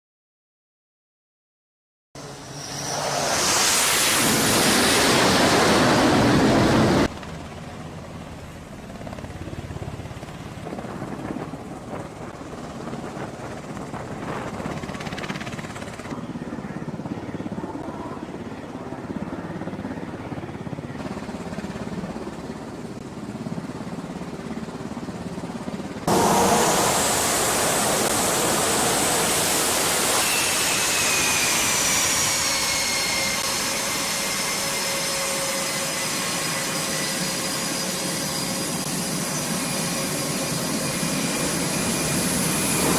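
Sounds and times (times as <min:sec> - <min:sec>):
jet engine roar: 0:02.2 - 0:07.2, 0:26.0 - 0:42.9
turbine whine: 0:02.2 - 0:07.2, 0:25.8 - 0:42.9.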